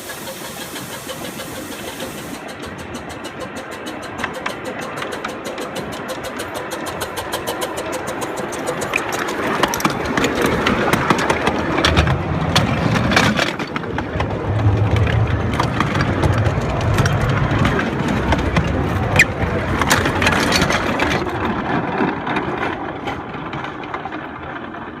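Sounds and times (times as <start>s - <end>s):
steam train clattering over track: 0.0s - 25.0s.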